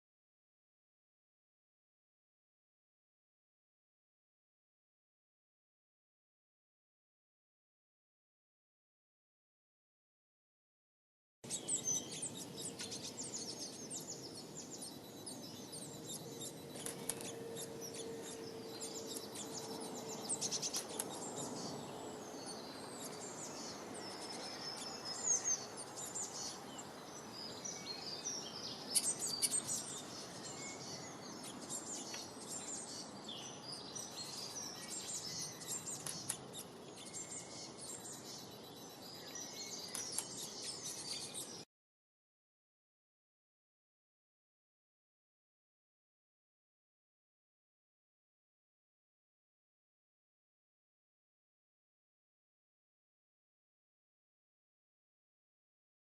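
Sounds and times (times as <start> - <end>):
small birds chirping: 11.4 - 41.7.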